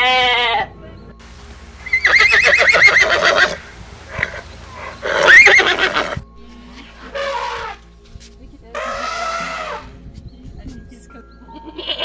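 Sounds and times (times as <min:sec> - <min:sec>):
horse whinnying: 0:01.8 - 0:06.2.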